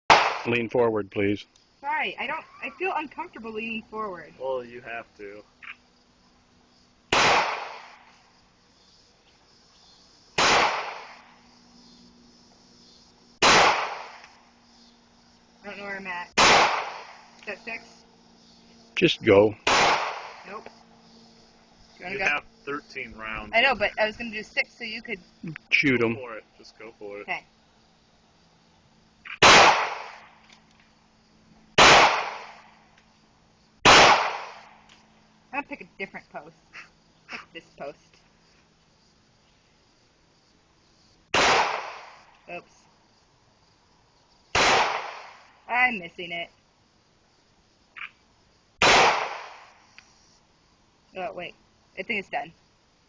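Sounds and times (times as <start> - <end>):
pistol shots: 0.1 - 0.5, 7.1 - 8.0, 10.4 - 11.2, 13.4 - 14.2, 16.4 - 17.2, 19.6 - 20.5, 29.4 - 30.2, 31.8 - 32.6, 33.8 - 34.6, 41.3 - 42.2, 44.6 - 45.4, 48.8 - 49.7.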